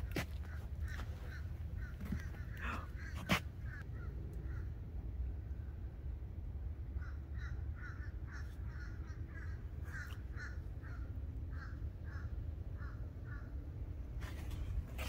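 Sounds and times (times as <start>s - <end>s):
bird calling: 0.0s - 4.7s.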